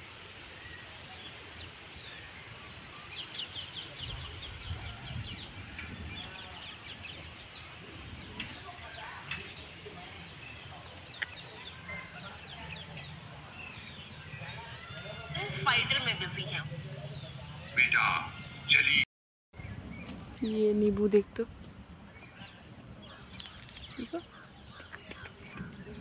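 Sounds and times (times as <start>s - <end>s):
small birds chirping: 0.6s - 19.0s, 21.6s - 26.0s
low outdoor rumble: 2.0s - 19.0s.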